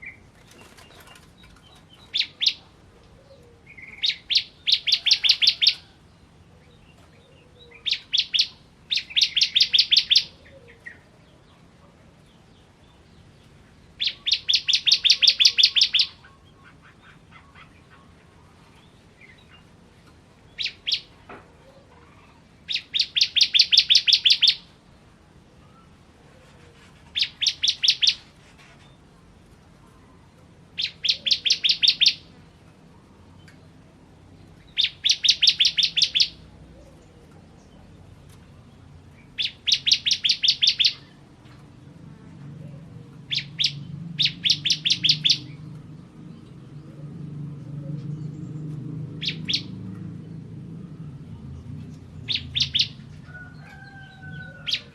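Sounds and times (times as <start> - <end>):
bird chirping in bursts: 0.0 - 2.7, 3.7 - 11.6, 12.3 - 21.2, 22.2 - 24.8, 27.0 - 29.1, 30.7 - 36.5, 37.6 - 41.4, 43.1 - 47.0, 48.0 - 50.5, 51.2 - 54.9.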